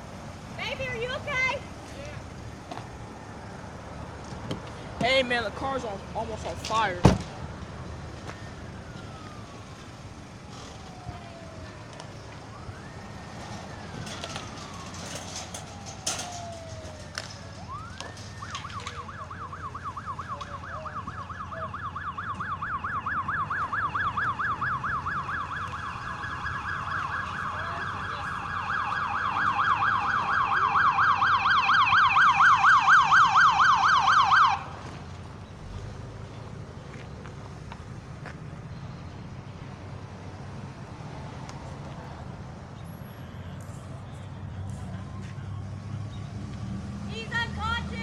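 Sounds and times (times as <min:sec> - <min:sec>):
siren yelping: 0:08.0 - 0:34.8.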